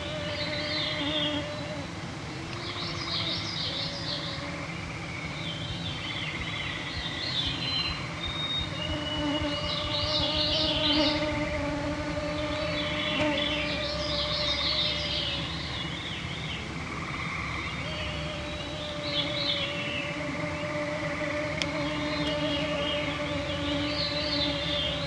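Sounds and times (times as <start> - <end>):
songbirds singing: 0.0 - 25.0
mosquitoes whining: 7.4 - 25.0.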